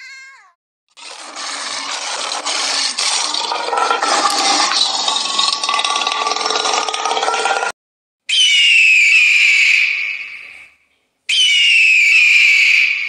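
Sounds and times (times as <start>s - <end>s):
lion snarling: 1.0s - 7.7s.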